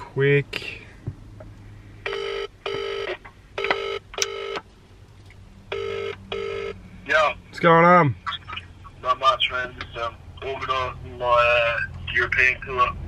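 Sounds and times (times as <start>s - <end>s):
telephone ringback tone: 2.1s - 4.6s, 5.7s - 6.8s.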